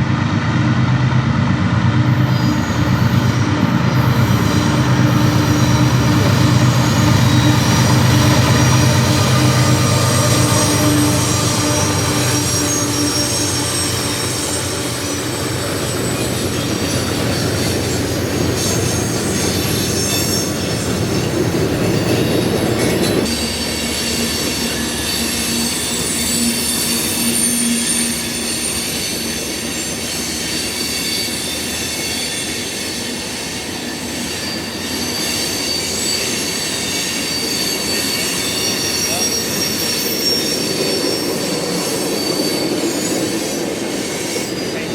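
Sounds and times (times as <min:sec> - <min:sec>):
rumble of wheels on rail: 0:00.0 - 0:44.9
train wheel squeal: 0:02.0 - 0:44.9.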